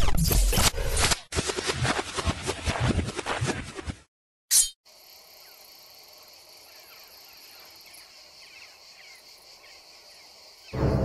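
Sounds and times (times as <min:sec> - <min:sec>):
crickets chirring: 0:04.9 - 0:11.0
ominous music: 0:10.8 - 0:11.0.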